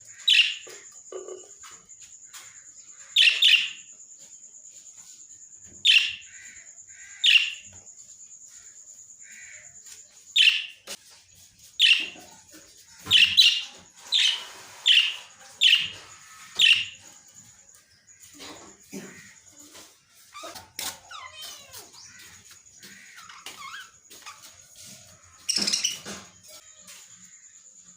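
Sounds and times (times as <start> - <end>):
parrots chirping: 0.1 - 1.4, 3.0 - 3.9, 5.8 - 7.8, 10.3 - 11.1, 11.7 - 17.3, 18.1 - 27.0.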